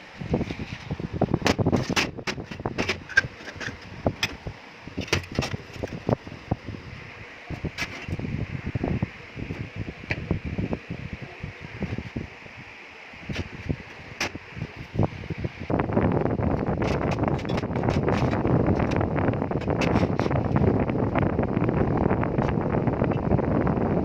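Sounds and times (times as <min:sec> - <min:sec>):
steady background hiss: 0:00.0 - 0:16.8.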